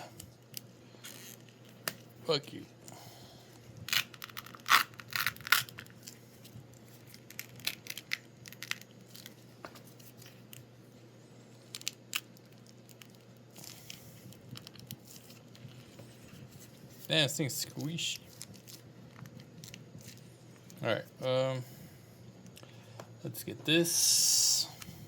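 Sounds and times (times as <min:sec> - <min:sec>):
plastic crackling and tearing: 0:03.8 - 0:10.7, 0:11.6 - 0:20.8.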